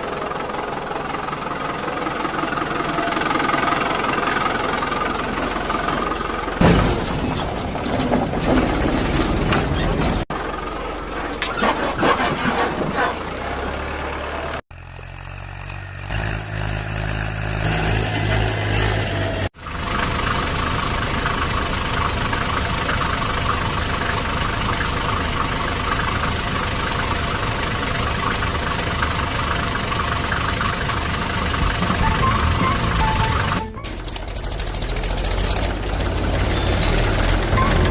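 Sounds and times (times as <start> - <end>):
engine running steadily: 0.0 - 37.9.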